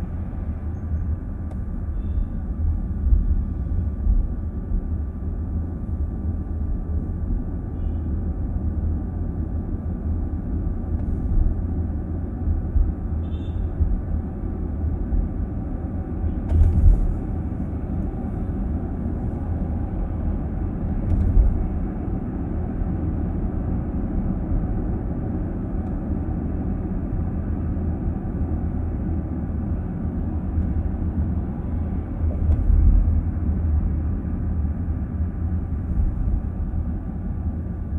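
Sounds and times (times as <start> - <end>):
car engine hum: 0.0 - 37.9
road and tyre rumble: 0.0 - 37.9.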